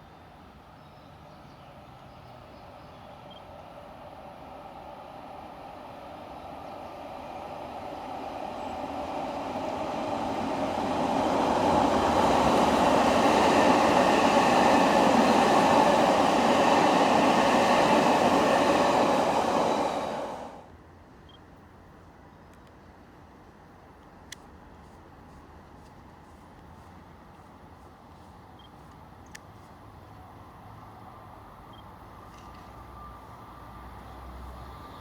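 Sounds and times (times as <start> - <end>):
electric train running past: 1.7 - 20.7, 29.8 - 35.0.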